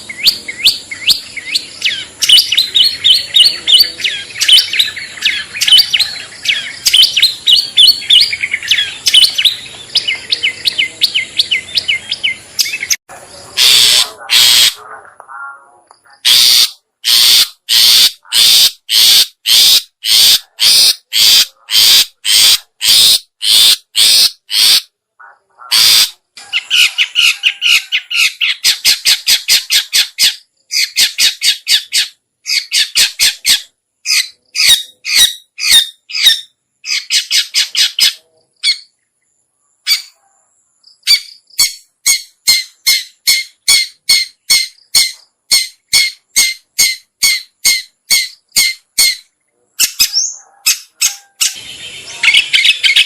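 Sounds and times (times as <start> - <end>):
shrike calling: 0.0 - 39.0, 41.0 - 53.0.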